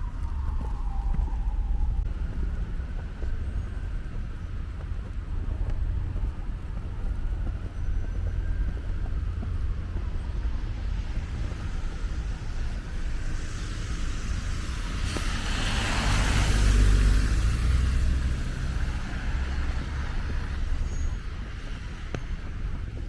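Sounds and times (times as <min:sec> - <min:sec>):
street traffic rumble: 0:00.0 - 0:23.0
car passing with tyre hiss: 0:11.0 - 0:22.7.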